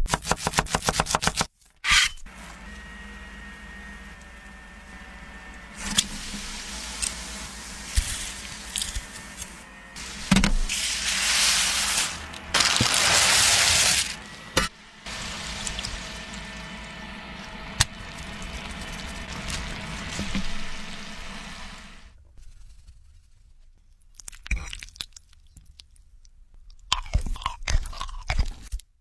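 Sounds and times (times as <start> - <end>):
hissing of frying or pouring: 2.3 - 22.1.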